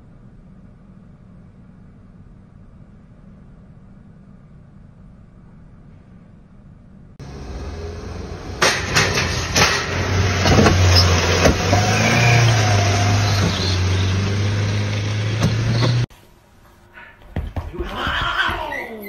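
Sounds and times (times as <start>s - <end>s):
road and wind noise: 2.8s - 16.1s
car engine droning: 7.2s - 16.1s.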